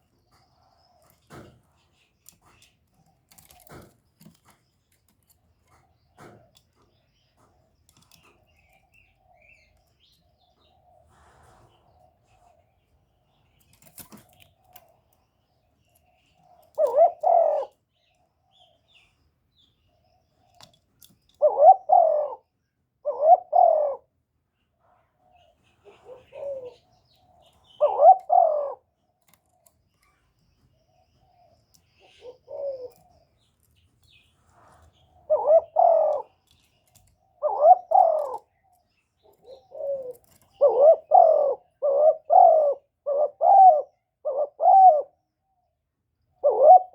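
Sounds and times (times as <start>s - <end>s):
dove cooing: 16.5s - 17.8s, 21.3s - 24.2s, 25.4s - 28.9s, 31.2s - 33.3s, 35.2s - 38.6s, 39.2s - 45.2s, 46.4s - 46.9s.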